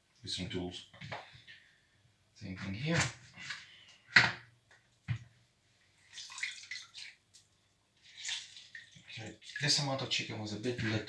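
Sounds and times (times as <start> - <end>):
juice dripping and splashing: 6.0 - 10.0.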